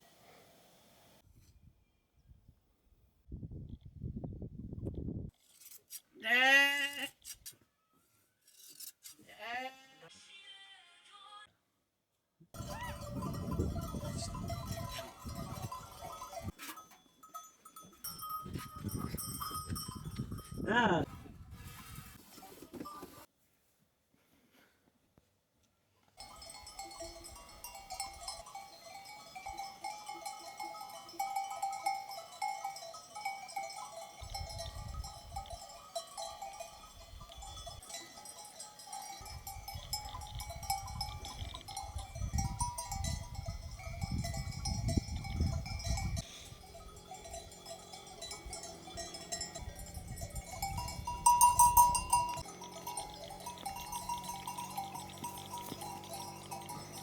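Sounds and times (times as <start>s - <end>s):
sheep bells clanking: 12.6s - 20.8s, 26.2s - 57.0s.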